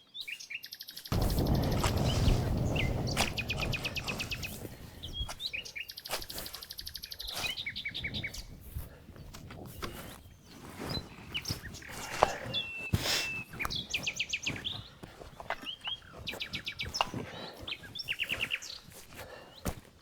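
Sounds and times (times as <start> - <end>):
songbirds singing: 0.0 - 19.9.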